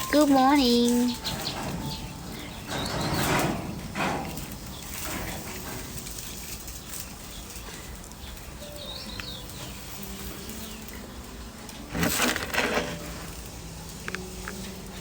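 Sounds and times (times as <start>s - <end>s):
bird chirp: 0.0s - 11.5s
loud rustling: 11.7s - 14.9s.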